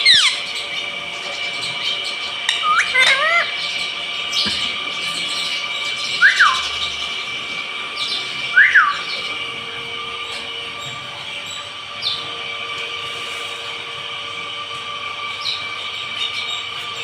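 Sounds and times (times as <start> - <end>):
parrot whistled calls: 0.0 - 0.6, 1.8 - 7.3, 7.9 - 9.9.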